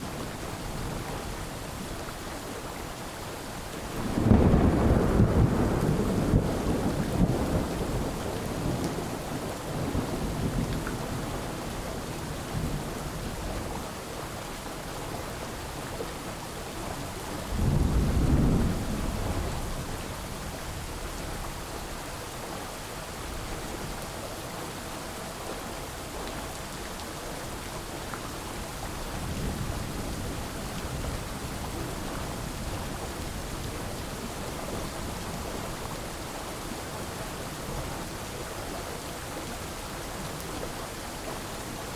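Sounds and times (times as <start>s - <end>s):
steady rain: 0.0s - 41.9s
rolling thunder: 4.0s - 11.4s, 17.5s - 20.1s.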